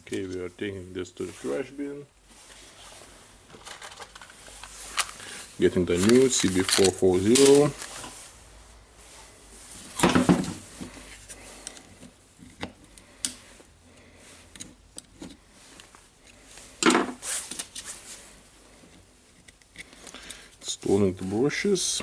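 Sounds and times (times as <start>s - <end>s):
small parts clicking and clattering: 3.6s - 5.2s.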